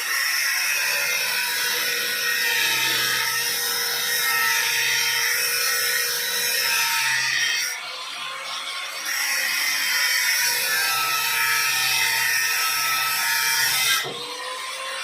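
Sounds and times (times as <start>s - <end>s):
power tool whining: 0.0s - 15.0s.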